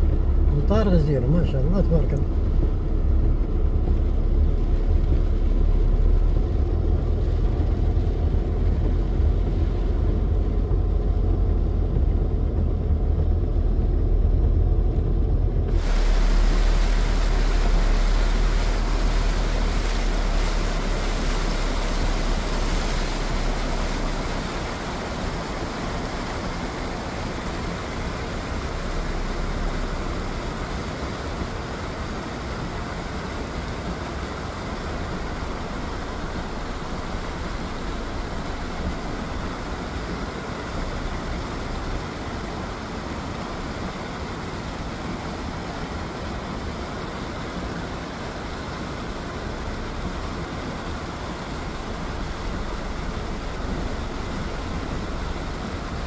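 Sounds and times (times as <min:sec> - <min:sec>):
low rumble: 0:00.0 - 0:42.1
heavy rain hissing: 0:15.6 - 0:56.0.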